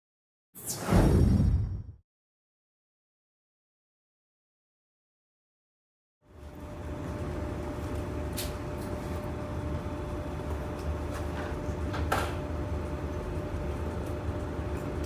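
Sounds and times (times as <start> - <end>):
mechanical hum: 6.2 - 15.0.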